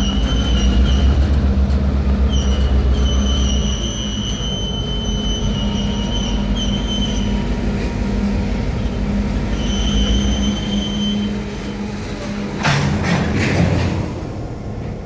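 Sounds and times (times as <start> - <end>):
wheels squealing on rails: 0.0 - 14.0
locomotive engine humming: 0.0 - 15.0.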